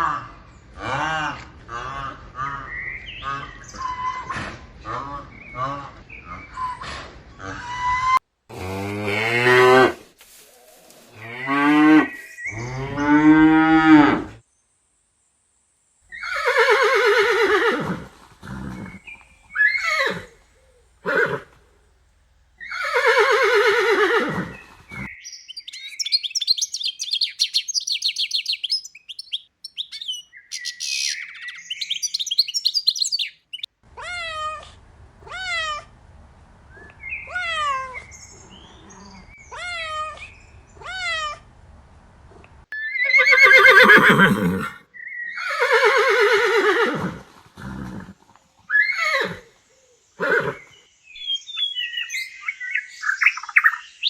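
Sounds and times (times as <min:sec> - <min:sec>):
cattle mooing: 0:11.1 - 0:14.3.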